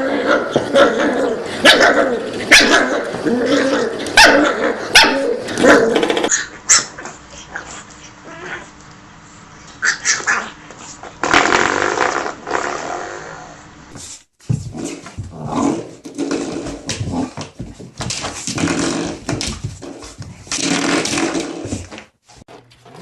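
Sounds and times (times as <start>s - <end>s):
puppies barking and growling: 0.0s - 8.8s, 9.7s - 11.0s
puppies yipping: 9.8s - 10.5s.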